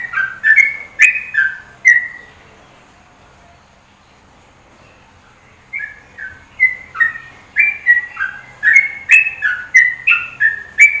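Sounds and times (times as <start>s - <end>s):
songbird whistled notes: 0.0s - 2.3s, 5.7s - 11.0s.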